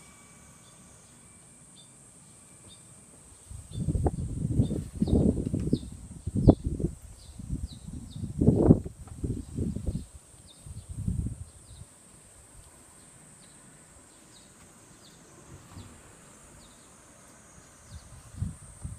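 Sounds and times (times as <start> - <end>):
insects hissing and chirping: 0.0 - 18.9
wind gusts buffeting microphone: 3.5 - 11.9, 17.8 - 18.9.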